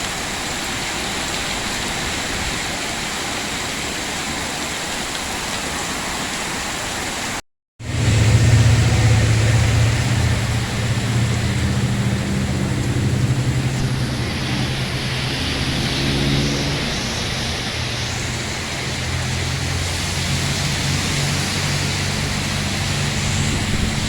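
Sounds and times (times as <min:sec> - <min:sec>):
heavy rain: 0:00.0 - 0:24.0
vehicle engine running: 0:07.8 - 0:24.0.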